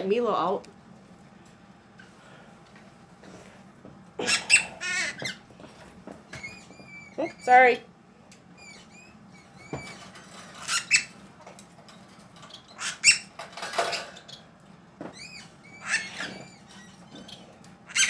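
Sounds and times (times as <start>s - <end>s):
small birds chirping: 4.2s - 5.5s, 6.3s - 11.3s, 12.5s - 13.4s, 15.1s - 18.0s.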